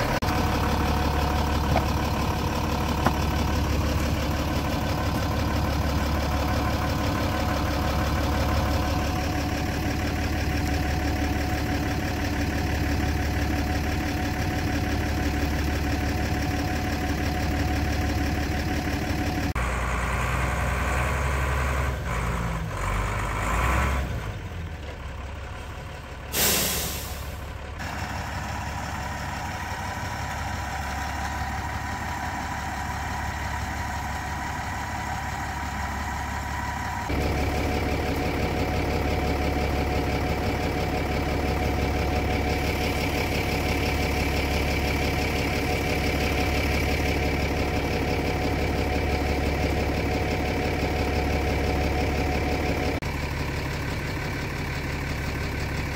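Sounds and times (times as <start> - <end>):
vehicle engine running: 0.0 - 55.9
short loud hiss: 26.3 - 27.3.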